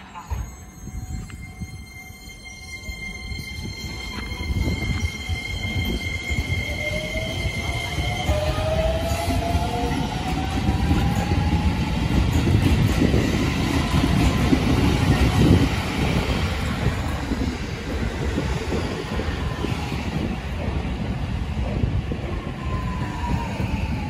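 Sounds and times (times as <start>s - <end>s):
train wheels rumbling and clacking: 0.0s - 24.0s.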